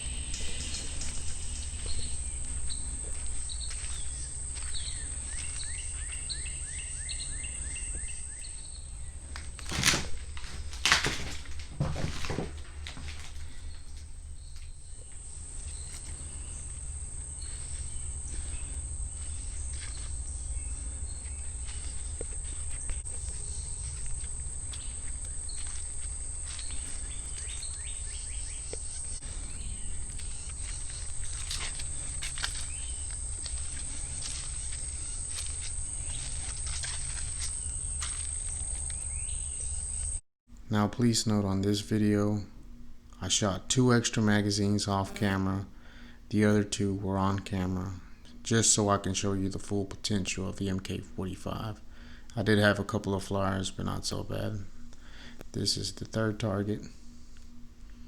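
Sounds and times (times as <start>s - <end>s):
bird chirping: 0.0s - 40.2s
high insect drone: 0.0s - 40.2s, 42.0s - 58.0s.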